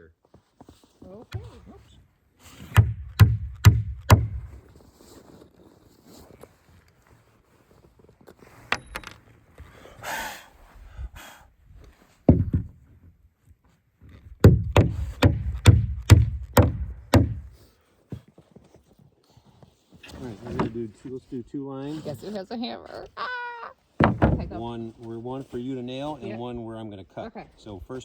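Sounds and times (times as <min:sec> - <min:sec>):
scrape: 0:00.4 - 0:02.7, 0:04.5 - 0:08.7, 0:17.6 - 0:22.4
hammer driving nails into wood: 0:02.6 - 0:04.5, 0:14.4 - 0:17.6.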